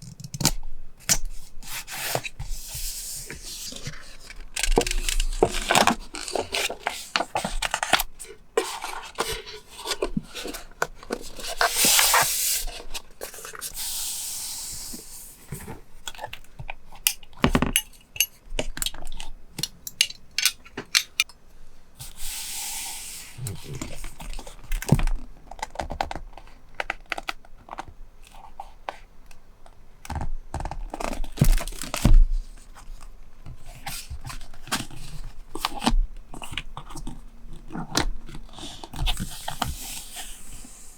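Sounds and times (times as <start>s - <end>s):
paper rustling and rubbing: 1.6s - 13.9s.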